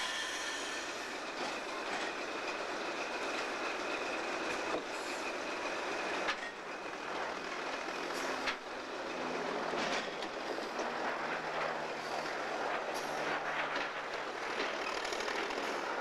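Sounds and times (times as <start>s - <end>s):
locomotive engine drone: 0.0s - 16.0s
train cars rumbling on track: 0.0s - 16.0s.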